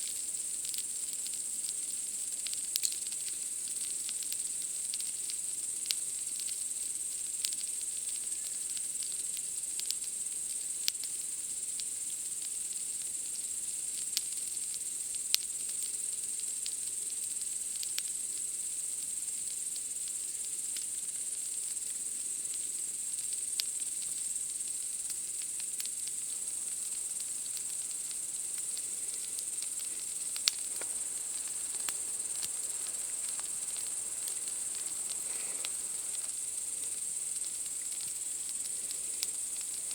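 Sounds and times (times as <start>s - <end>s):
campfire crackling: 0.0s - 39.9s
night insects chirring: 0.0s - 39.9s.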